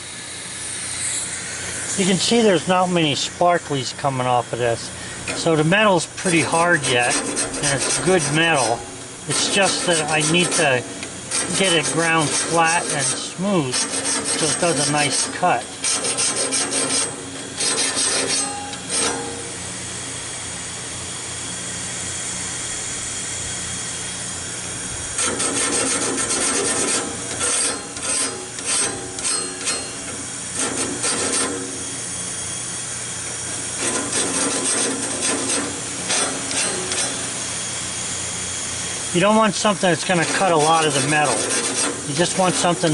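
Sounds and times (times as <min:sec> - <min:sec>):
grinding wheel on metal blade: 0:00.7 - 0:02.4, 0:05.4 - 0:19.6, 0:25.2 - 0:31.9, 0:33.7 - 0:37.4, 0:39.2 - 0:42.9.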